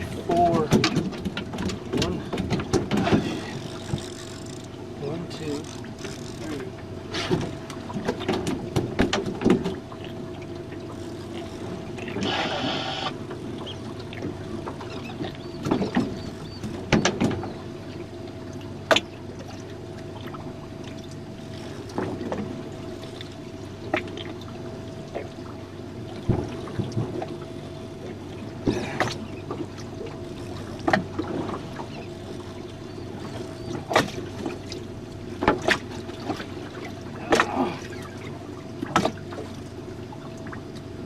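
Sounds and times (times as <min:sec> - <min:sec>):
boat motor hum: 0:00.0 - 0:41.0.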